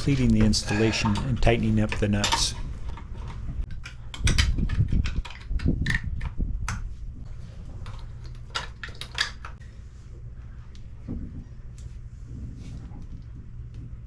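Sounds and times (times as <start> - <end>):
low steady hum: 0.0 - 2.9.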